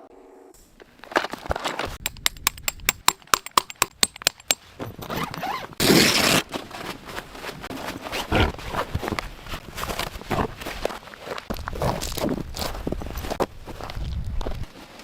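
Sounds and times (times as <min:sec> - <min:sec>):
sharp clicks: 0:02.0 - 0:04.6
zipper pulled quickly: 0:05.1 - 0:06.5, 0:08.1 - 0:09.0.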